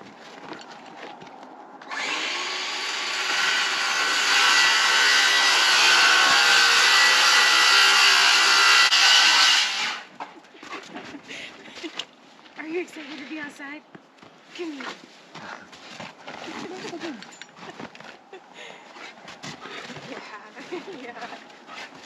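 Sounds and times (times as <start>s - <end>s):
power saw cutting wood: 1.8s - 10.1s.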